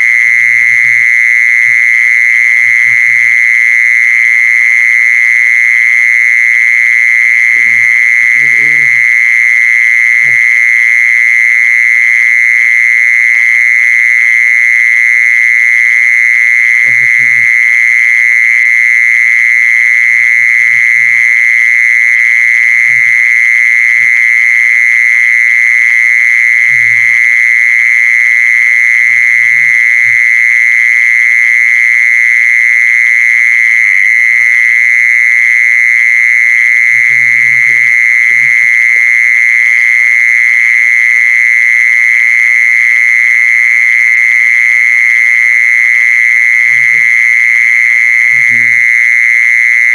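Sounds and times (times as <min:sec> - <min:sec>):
insect buzzing: 0:07.1 - 0:10.6, 0:16.8 - 0:17.7, 0:46.6 - 0:47.4.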